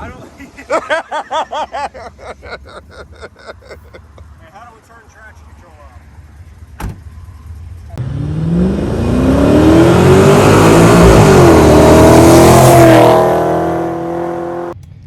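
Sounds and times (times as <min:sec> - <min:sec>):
car engine accelerating: 0:06.0 - 0:14.8.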